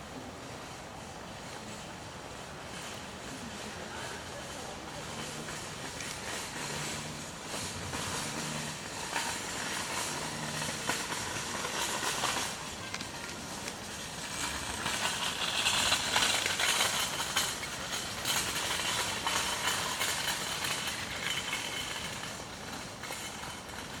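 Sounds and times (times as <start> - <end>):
steady rushing noise: 0.0 - 24.0.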